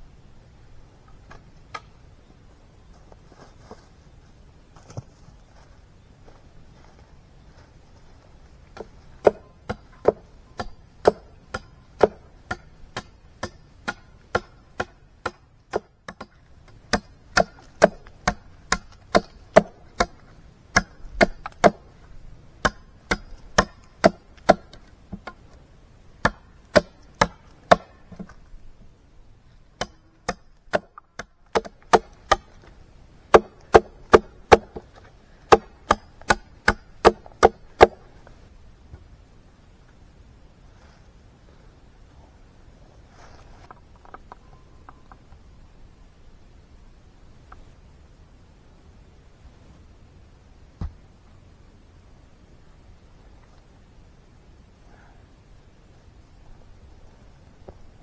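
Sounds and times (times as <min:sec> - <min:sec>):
blade chopping wood: 0:08.8 - 0:21.9, 0:22.6 - 0:25.4, 0:26.2 - 0:28.3, 0:29.8 - 0:32.5, 0:33.3 - 0:34.9, 0:35.5 - 0:38.0.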